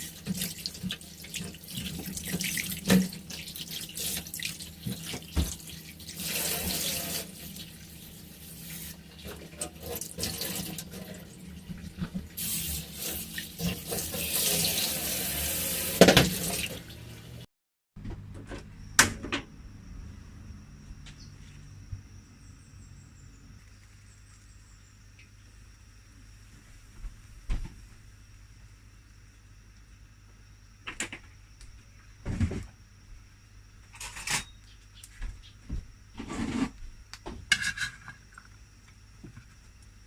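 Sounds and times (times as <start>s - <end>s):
tap water running into sink: 0.0s - 17.1s.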